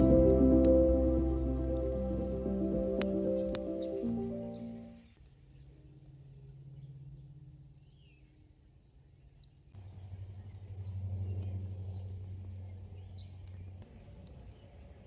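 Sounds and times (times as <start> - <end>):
low sustained music notes: 0.0 - 5.0.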